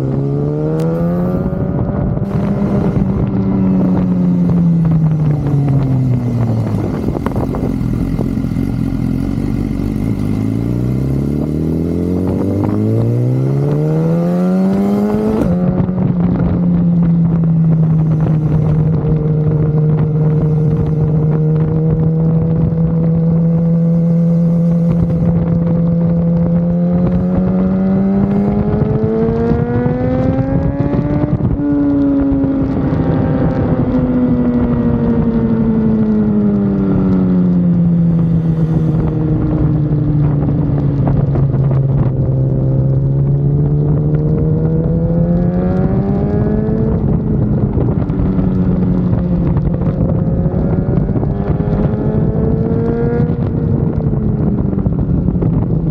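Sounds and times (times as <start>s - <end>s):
wind rushing: 0.0s - 36.4s
motorcycle engine running at speed: 0.0s - 55.9s.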